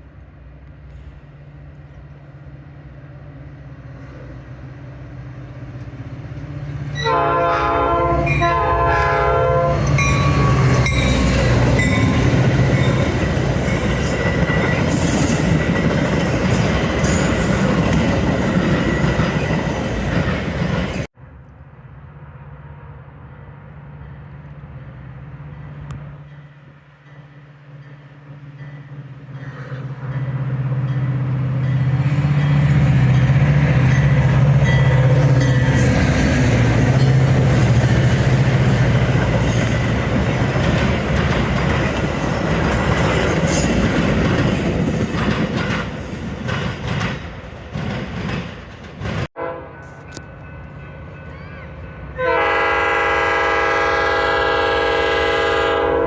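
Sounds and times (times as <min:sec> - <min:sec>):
diesel locomotive engine: 0:00.0 - 0:56.0
train horn chord: 0:07.0 - 0:10.8, 0:49.4 - 0:50.3, 0:52.1 - 0:56.0
wheels clattering on rails: 0:27.8 - 0:49.3.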